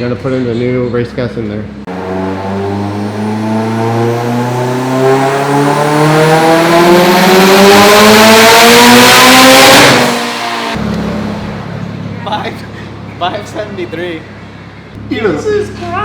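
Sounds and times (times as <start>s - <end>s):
throttle closing rush: 1.9s - 11.8s
turbocharged engine revving on dyno: 1.9s - 11.9s.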